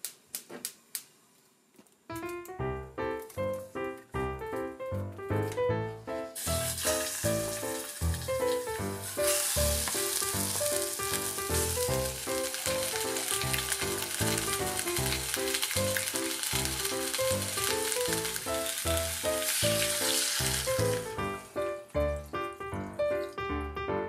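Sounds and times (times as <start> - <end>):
background music: 2.1 - 24.0
chicken sizzling in oil: 6.4 - 22.6.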